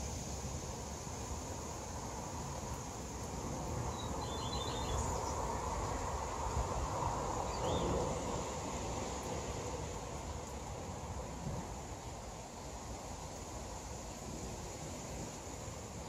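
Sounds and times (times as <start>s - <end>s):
steady hiss: 0.0s - 16.0s
bird chirping: 3.9s - 5.4s.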